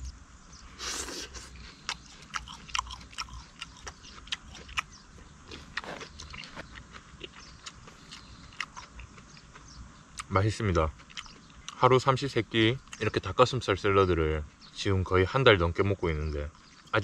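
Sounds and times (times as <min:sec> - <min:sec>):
person chewing with crunches: 0:00.8 - 0:11.8.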